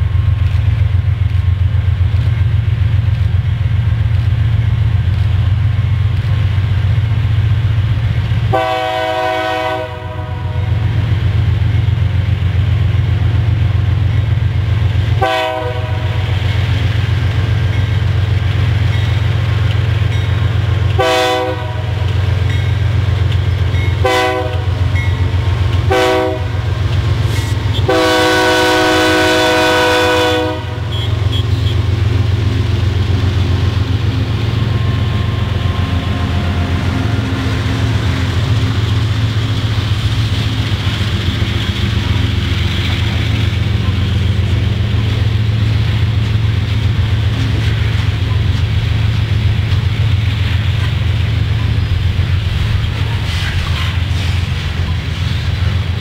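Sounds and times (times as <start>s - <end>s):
train wheels clattering on rails: 0.0s - 10.1s, 10.8s - 56.0s
diesel locomotive engine rumble: 0.0s - 56.0s
train horn blasts: 8.5s - 10.8s, 15.2s - 16.2s, 20.9s - 22.1s, 23.9s - 25.1s, 25.8s - 26.7s, 27.5s - 31.9s.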